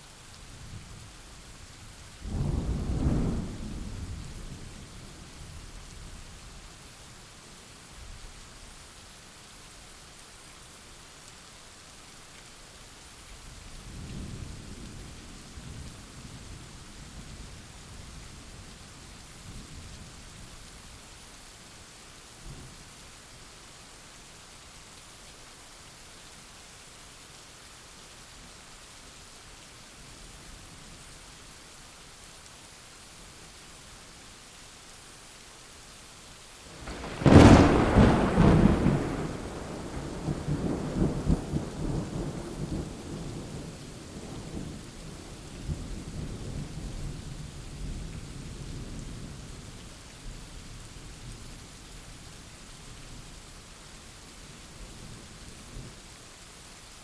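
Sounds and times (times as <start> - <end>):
rain falling: 0.0 - 57.0
thunderclap and rumble: 36.8 - 44.8.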